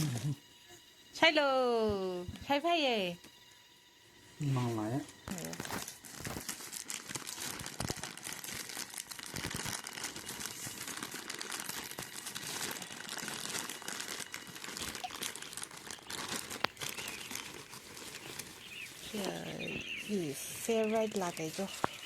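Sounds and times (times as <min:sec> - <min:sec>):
plastic snack packet crinkling: 0:05.3 - 0:20.0, 0:20.7 - 0:22.0.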